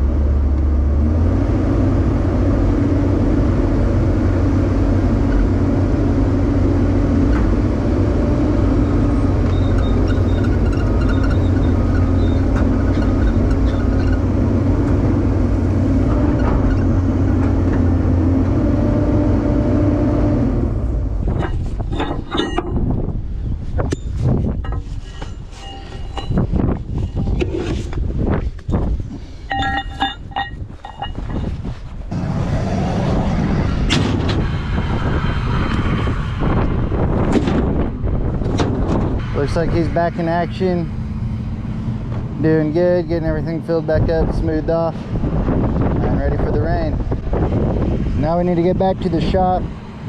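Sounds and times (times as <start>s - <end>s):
diesel engine running under load: 0.0s - 50.0s
short high squeaks: 9.4s - 14.3s, 23.9s - 27.4s.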